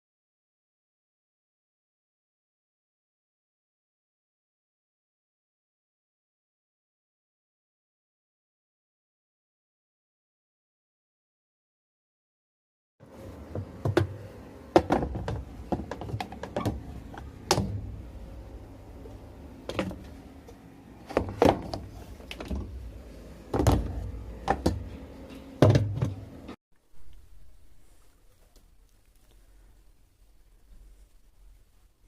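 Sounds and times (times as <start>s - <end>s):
washing machine parts knocking: 13.5s - 18.1s, 21.0s - 22.9s, 23.5s - 26.3s.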